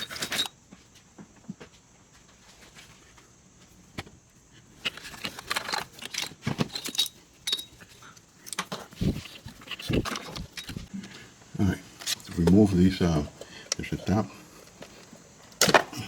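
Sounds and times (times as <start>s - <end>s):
small plastic parts clicking and rattling: 0.0s - 0.5s, 4.8s - 11.2s.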